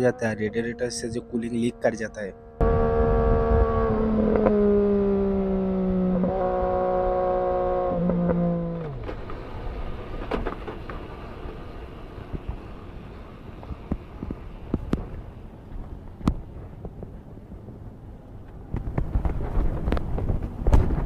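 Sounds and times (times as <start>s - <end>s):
road and wind noise: 0.0s - 21.0s
motorcycle engine running: 2.4s - 9.1s.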